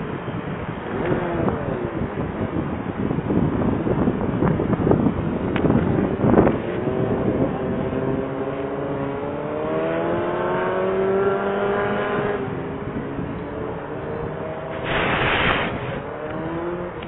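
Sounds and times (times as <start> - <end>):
wind rumble on microphone: 0.0 - 17.0
vehicle engine accelerating: 6.3 - 17.0.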